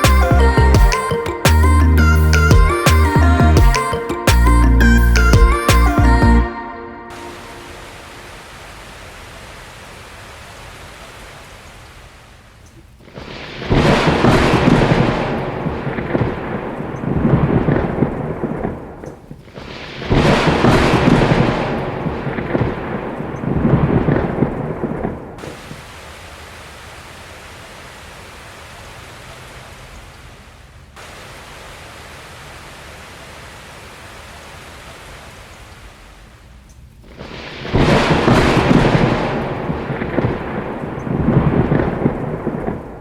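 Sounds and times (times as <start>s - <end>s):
steady rain hiss: 0.0s - 6.4s, 7.1s - 43.0s
rolls of thunder: 13.0s - 25.5s, 37.0s - 43.0s.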